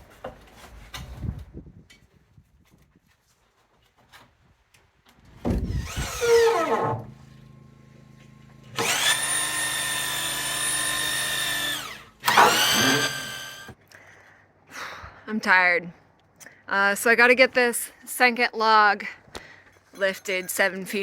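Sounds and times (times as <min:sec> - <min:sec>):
power drill running: 0:05.7 - 0:13.8.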